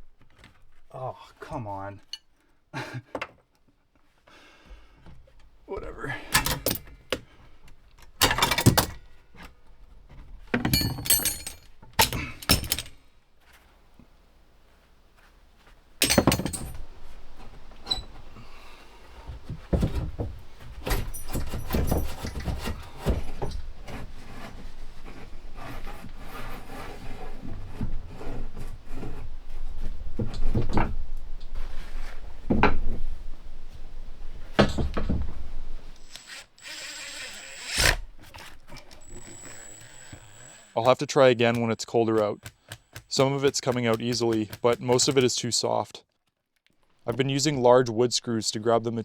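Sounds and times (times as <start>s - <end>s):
pry bar scraping wood: 16.0s - 29.6s, 35.8s - 45.3s
drill driving screws: 35.9s - 40.8s.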